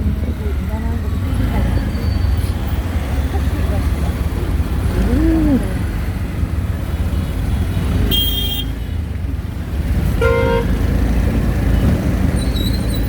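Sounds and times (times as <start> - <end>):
engine and road rumble: 0.0 - 13.0
vehicle horn toots: 8.1 - 8.8, 10.2 - 10.7.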